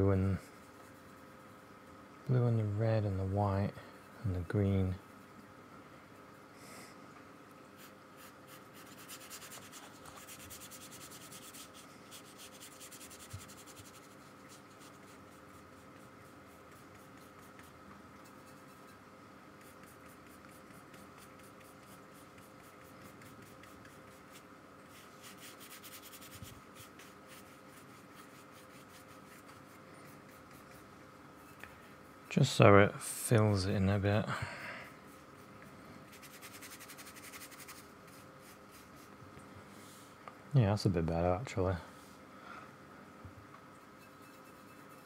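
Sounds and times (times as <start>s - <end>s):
faint steady hum: 0.0s - 45.0s
paintbrush scrubbing on paper: 7.8s - 19.0s, 19.6s - 32.6s, 35.0s - 39.2s, 43.8s - 45.0s.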